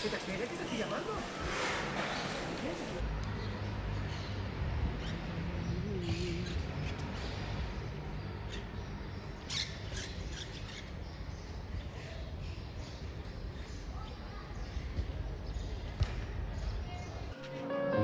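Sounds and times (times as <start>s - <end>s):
street background noise: 0.0s - 18.0s
birds chirping: 3.0s - 18.0s.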